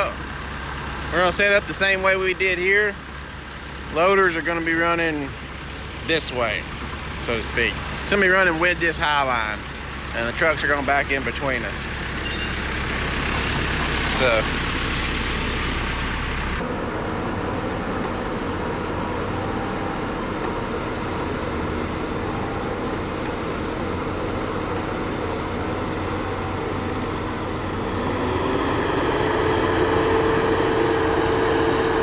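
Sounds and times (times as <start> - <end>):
engine running and revving: 9.7 - 32.0.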